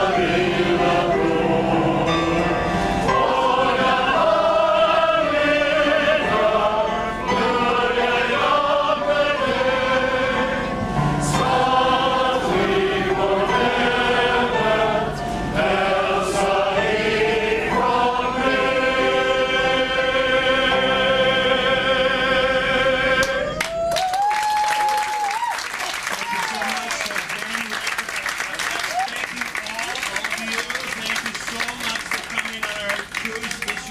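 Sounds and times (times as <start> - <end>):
male chorus singing: 0.0 - 23.6.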